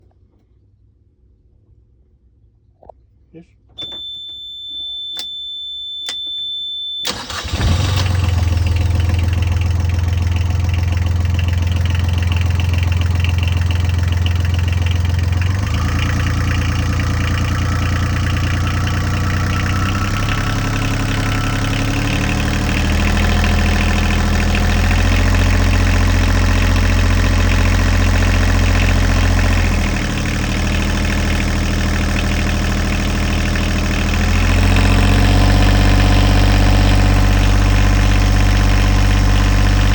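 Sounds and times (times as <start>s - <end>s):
high-pitched beep: 3.8s - 7.1s
boat engine running: 7.1s - 39.9s.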